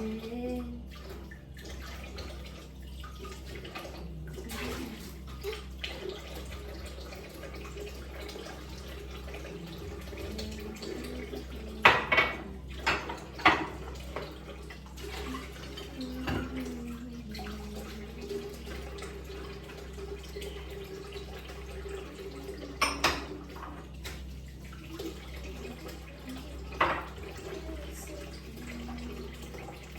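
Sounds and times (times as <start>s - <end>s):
water running in a sink: 0.0s - 29.9s
dishes clattering: 11.7s - 14.4s, 22.8s - 23.9s, 26.7s - 27.3s.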